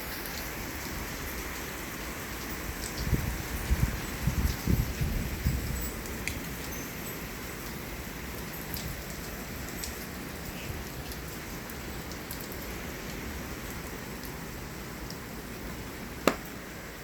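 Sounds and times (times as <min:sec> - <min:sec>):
heavy rain falling: 0:07.3 - 0:17.0
hand slapping a leg: 0:16.2 - 0:16.5.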